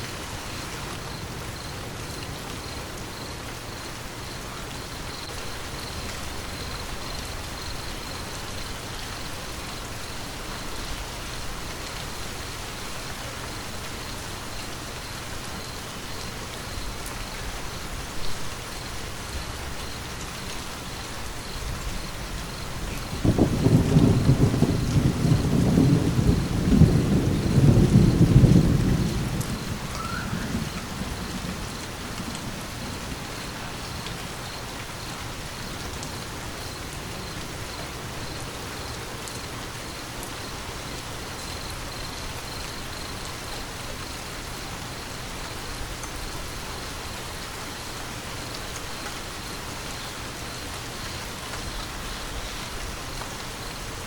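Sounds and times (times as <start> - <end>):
steady rain falling: 0.0 - 54.0
thunder rumbling: 21.7 - 34.7.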